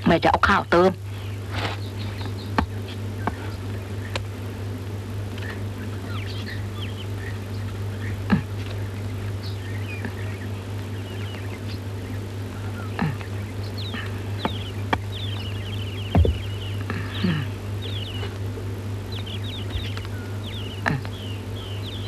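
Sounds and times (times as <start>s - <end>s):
birds chirping: 0.0s - 22.0s
steady low hum: 0.0s - 22.0s
sharp knocks: 16.1s - 16.5s.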